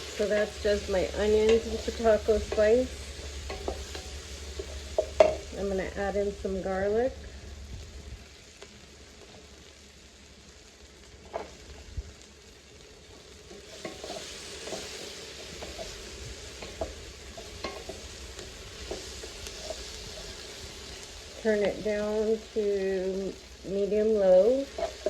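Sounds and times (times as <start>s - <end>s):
onions sizzling in oil: 0.0s - 25.0s
spoon scraping a pot: 24.7s - 25.0s.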